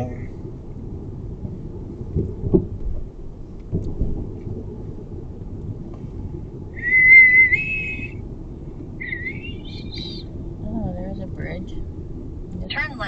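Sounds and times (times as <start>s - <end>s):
road rumble inside car: 0.0s - 13.0s
dull bumps: 0.7s - 8.0s
wavering whistle-like tone: 6.8s - 8.2s, 9.0s - 10.2s.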